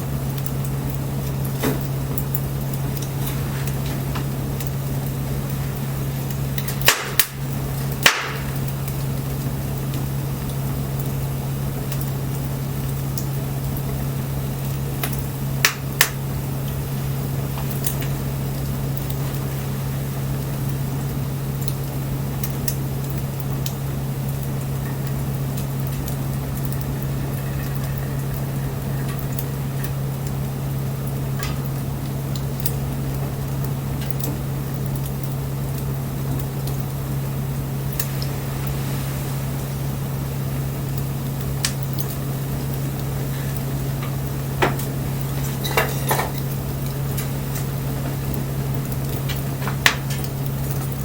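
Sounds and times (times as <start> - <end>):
steady low hum: 0.0 - 51.0
wood bonfire crackling: 0.0 - 51.0
sharp pops and snaps: 6.2 - 13.9, 14.7 - 16.8, 20.4 - 27.1, 29.0 - 37.0, 40.9 - 51.0.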